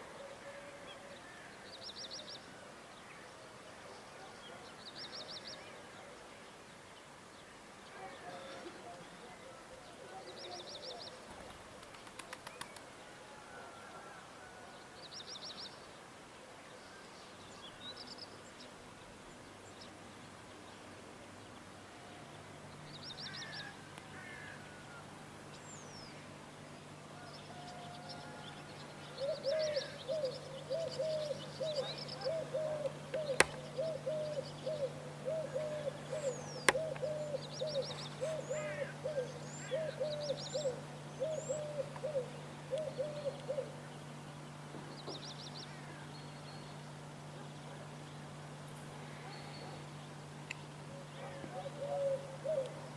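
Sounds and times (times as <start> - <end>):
birds chirping and twittering: 0.0 - 52.9
faint steady hum: 0.0 - 52.9
low hooting call: 21.8 - 52.9
sharp clicks: 32.8 - 33.6.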